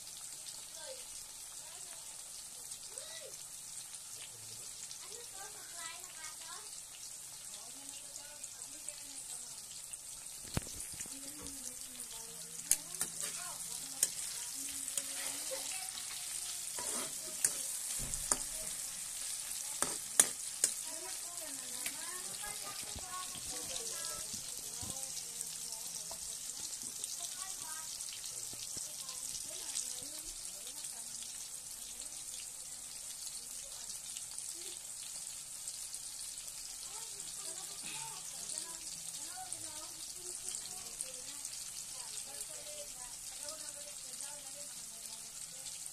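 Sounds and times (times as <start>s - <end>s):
onion sizzling in hot oil: 0.0s - 45.9s
metal spatula scraping pan: 12.7s - 20.8s.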